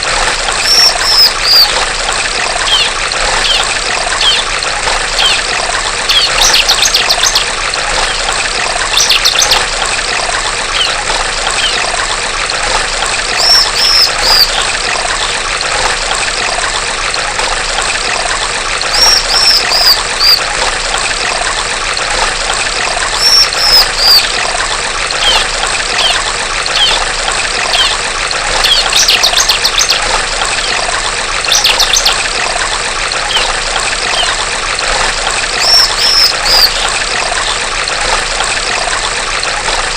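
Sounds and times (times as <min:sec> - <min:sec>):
trickling water: 0:00.0 - 0:39.9
bird buzzy high trills: 0:00.5 - 0:01.8, 0:02.4 - 0:09.7, 0:10.7 - 0:12.1, 0:13.3 - 0:15.4, 0:18.8 - 0:20.5, 0:23.1 - 0:24.6, 0:25.2 - 0:32.6, 0:33.2 - 0:37.7.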